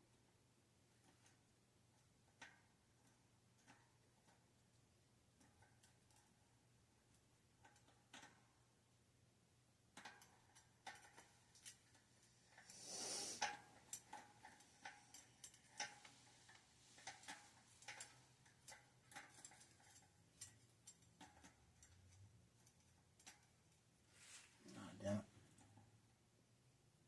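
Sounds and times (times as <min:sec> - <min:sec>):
bicycle parts and tools clicking: 0:02.0 - 0:04.4, 0:07.6 - 0:08.5, 0:10.0 - 0:23.8
brief hiss: 0:12.7 - 0:13.5.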